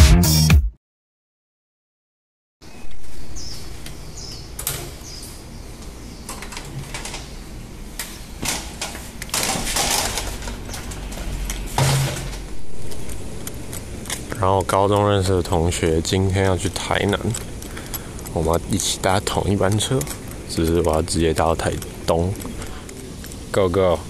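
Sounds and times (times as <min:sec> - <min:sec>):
sharp clicks and taps: 0:12.9 - 0:22.6.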